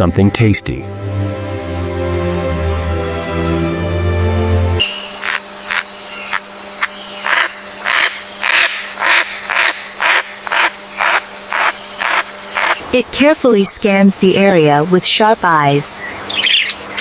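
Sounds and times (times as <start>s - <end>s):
parrot squawking: 5.2s - 12.8s.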